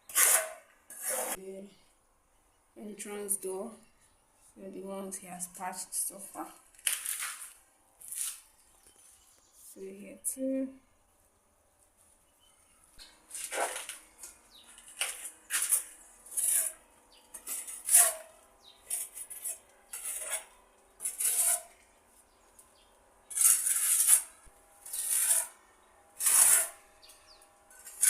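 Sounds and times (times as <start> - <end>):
metal trowel scraping plaster: 0.0 - 1.4, 13.3 - 14.0, 14.8 - 21.8, 23.3 - 25.6, 26.2 - 26.8, 27.7 - 28.0.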